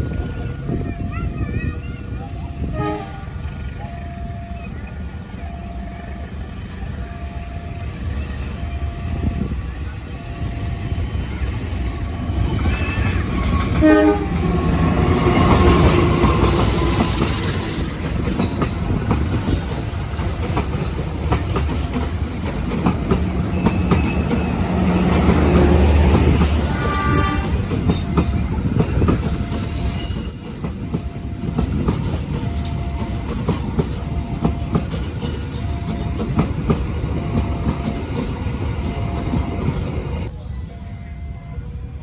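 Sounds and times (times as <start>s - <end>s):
passenger train rumbling past: 0.0s - 42.0s
wheels clicking over rail joints: 11.5s - 40.3s.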